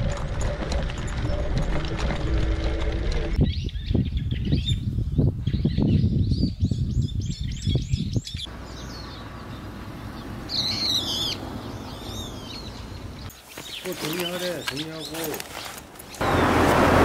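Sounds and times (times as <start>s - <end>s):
wind buffeting microphone: 0.0s - 8.5s
small birds chirping: 3.4s - 16.5s
loud bird call: 8.7s - 13.2s.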